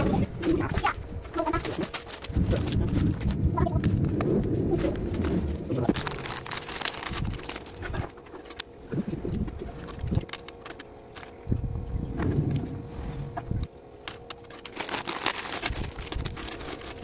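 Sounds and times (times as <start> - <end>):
rustling: 0.0 - 8.6, 14.4 - 17.0.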